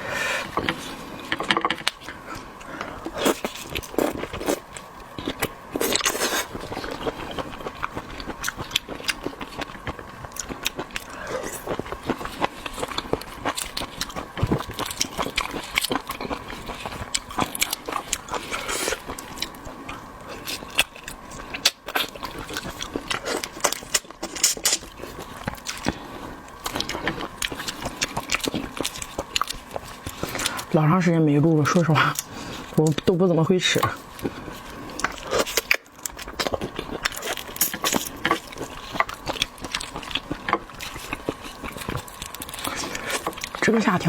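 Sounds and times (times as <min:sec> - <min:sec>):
chewing and crackling seafood: 0:00.0 - 0:44.0.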